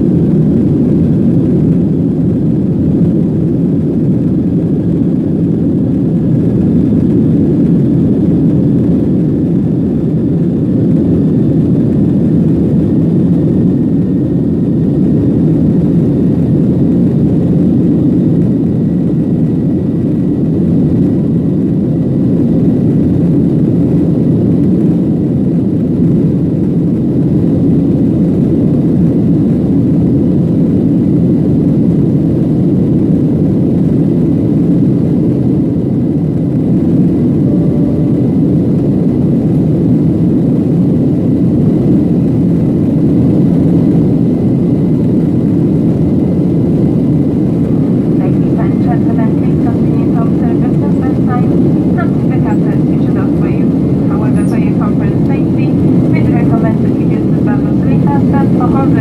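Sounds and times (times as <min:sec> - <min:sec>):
engine fan whine: 0:00.0 - 0:59.0
jet cabin rushing noise: 0:47.0 - 0:59.0.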